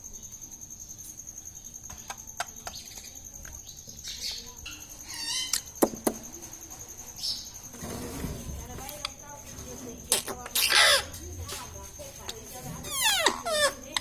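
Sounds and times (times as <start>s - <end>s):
parrot chattering calls: 10.2s - 11.2s.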